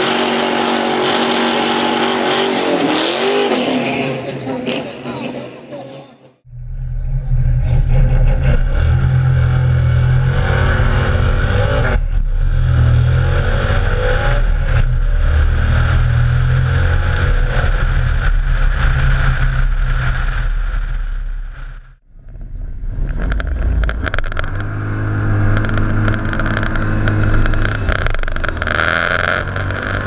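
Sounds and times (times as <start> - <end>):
road noise: 0.0 - 30.0
car engine low rumble: 6.4 - 30.0.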